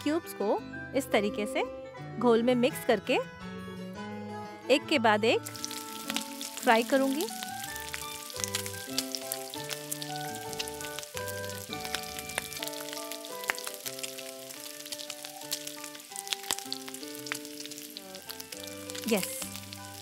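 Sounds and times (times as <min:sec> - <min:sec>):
background music with held notes: 0:00.0 - 0:20.0
food sizzling in oil: 0:05.4 - 0:20.0.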